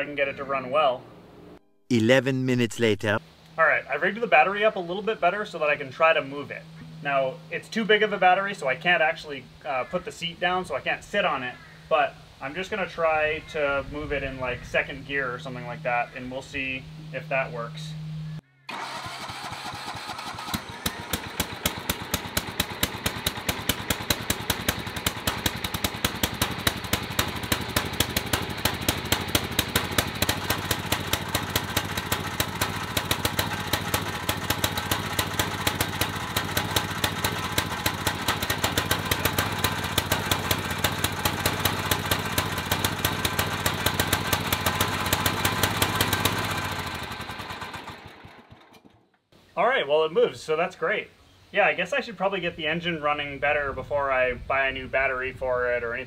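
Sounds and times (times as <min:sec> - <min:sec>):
small gasoline engine running: 0:18.7 - 0:49.1.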